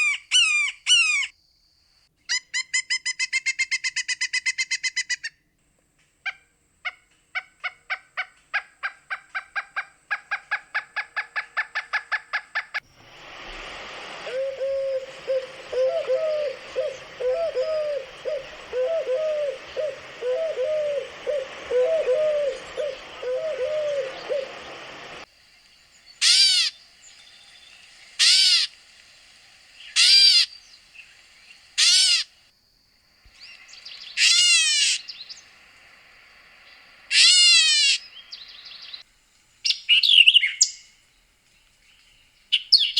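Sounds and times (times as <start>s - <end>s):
loud bird calls: 7.4s - 28.8s, 29.6s - 32.4s, 33.3s - 39.0s
steady hiss: 12.7s - 40.1s
bird low repeated notes: 13.0s - 25.2s
bird rapid clear notes: 13.0s - 25.3s.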